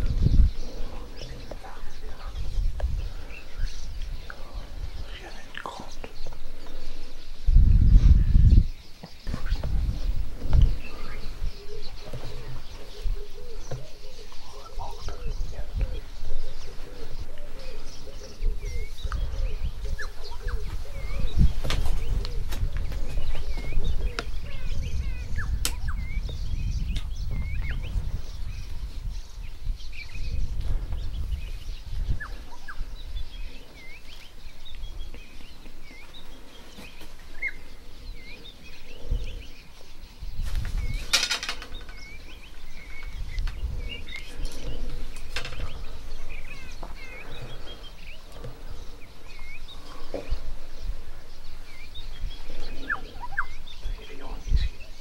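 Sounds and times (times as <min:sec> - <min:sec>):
wild birds chirping: 0:00.0 - 0:55.0.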